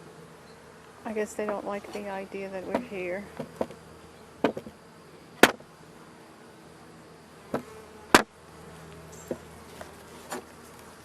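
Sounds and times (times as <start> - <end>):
bees buzzing: 0.0 - 11.0
sharp knocks: 4.4 - 4.8, 5.4 - 5.6.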